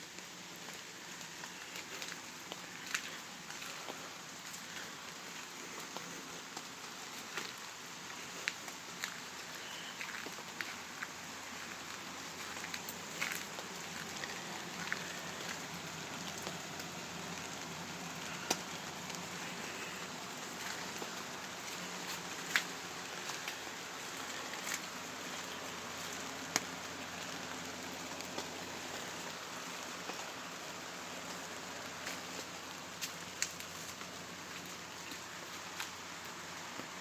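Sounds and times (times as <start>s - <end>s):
raindrops ticking close by: 0.0s - 37.0s
steady rain falling: 0.0s - 37.0s.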